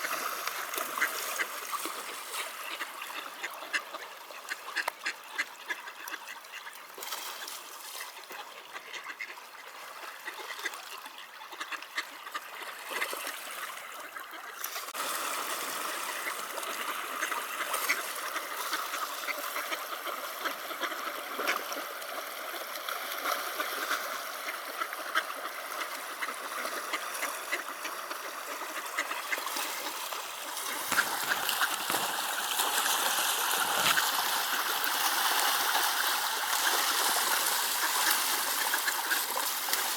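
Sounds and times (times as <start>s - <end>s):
ducks quacking: 0.0s - 6.8s, 8.0s - 14.9s, 15.7s - 39.8s
ducks splashing on water: 0.0s - 39.9s
river flowing: 14.7s - 39.9s.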